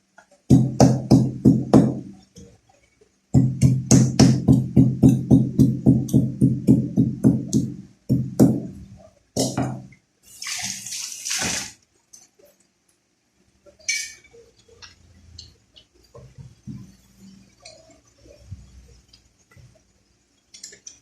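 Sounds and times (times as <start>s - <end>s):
running or splashing water: 10.3s - 11.8s.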